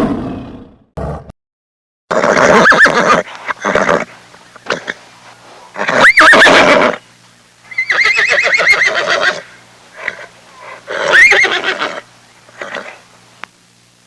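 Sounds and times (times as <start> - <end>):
horse neighing: 2.1 - 5.0, 5.8 - 7.0, 7.7 - 13.0.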